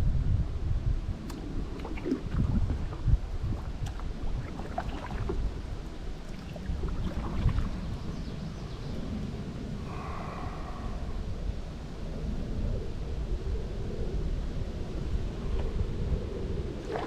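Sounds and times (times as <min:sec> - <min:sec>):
wind on microphone: 0:00.0 - 0:17.0
paddle splashing water: 0:01.2 - 0:08.4, 0:16.8 - 0:17.0.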